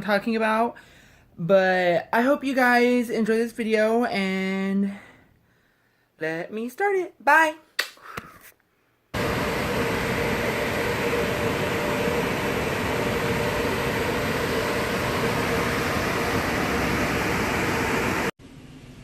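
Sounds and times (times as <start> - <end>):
car wash equipment rushing: 9.2 - 18.3
faint hum: 9.2 - 19.0.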